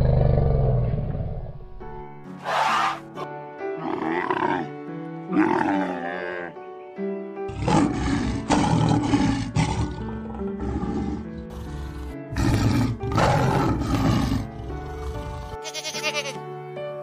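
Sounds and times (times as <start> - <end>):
lion roaring: 0.0 - 1.6, 7.5 - 15.6
background music: 0.4 - 17.0.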